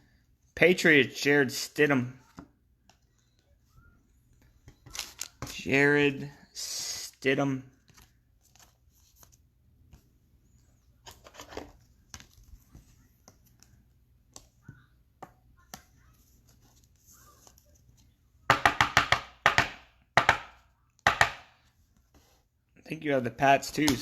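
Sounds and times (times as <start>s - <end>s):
cards and packaging rustling: 2.1s - 5.8s, 7.0s - 14.6s.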